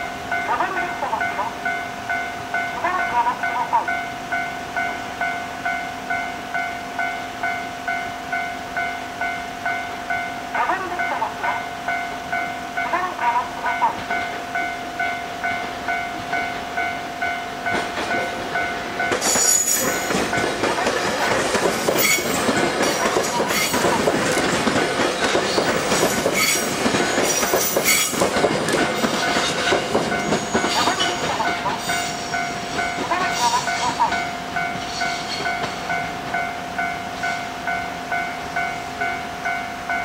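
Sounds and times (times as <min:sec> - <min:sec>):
level crossing alarm bell: 0:00.0 - 0:24.1, 0:25.7 - 0:40.0
electric train passing: 0:00.0 - 0:40.0
wheels clacking over rail joints: 0:17.6 - 0:36.5.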